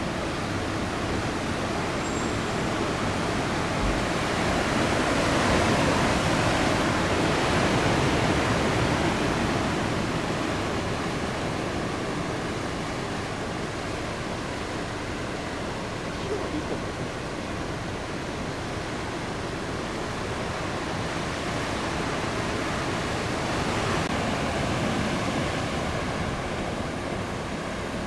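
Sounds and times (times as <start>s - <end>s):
heavy surf breaking: 0.0s - 12.4s, 21.6s - 28.0s.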